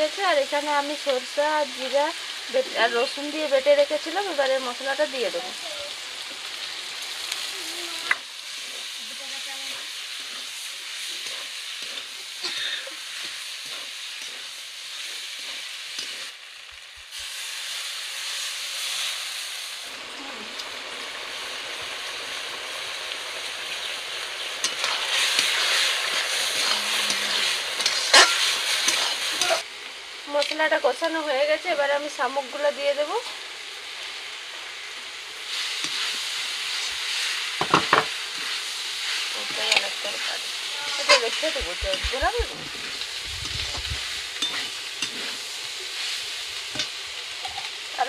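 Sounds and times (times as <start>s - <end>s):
food sizzling in oil in a wok: 0.0s - 48.0s
metal spatula scraping a pan: 8.5s - 16.3s, 24.6s - 29.6s, 35.6s - 47.7s.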